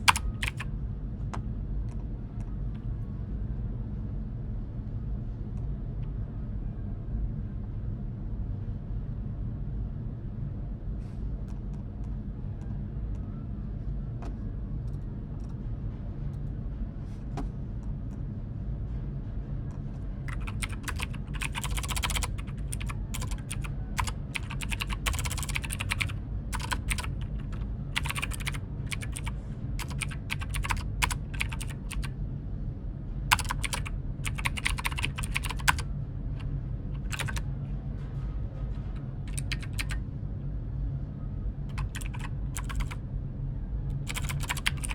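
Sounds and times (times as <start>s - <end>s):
keyboard typing clicks: 0.0s - 0.6s, 20.3s - 32.1s, 33.3s - 35.8s, 37.0s - 37.4s, 39.3s - 40.0s, 41.7s - 43.0s, 43.9s - 44.9s
steady low hum: 0.0s - 44.9s.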